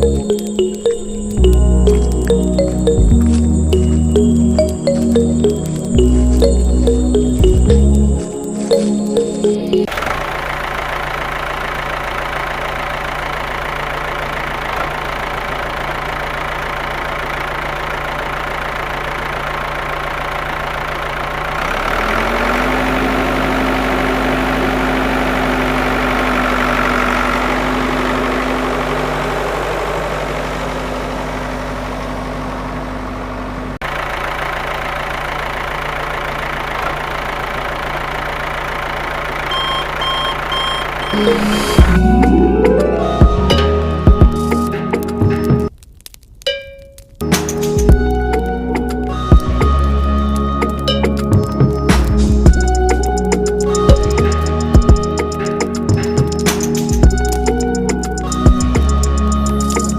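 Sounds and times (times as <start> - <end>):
higher rising whine: 0.0 - 10.3, 40.9 - 44.8
engine-like hum: 0.0 - 45.8, 47.2 - 59.9.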